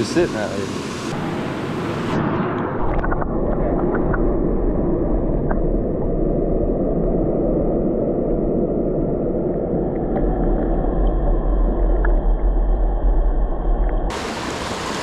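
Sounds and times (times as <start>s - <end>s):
muffled underwater river rumble: 1.1s - 15.0s
faint clicks and ticks: 9.9s - 14.1s.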